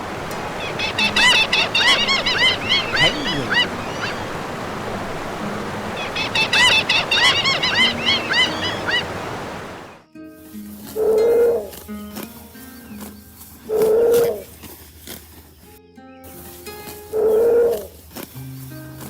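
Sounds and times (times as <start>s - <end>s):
bird honking calls: 0.0s - 10.0s.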